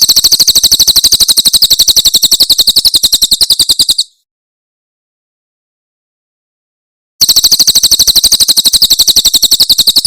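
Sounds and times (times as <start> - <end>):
bird singing fast high trill: 0.0 - 4.2.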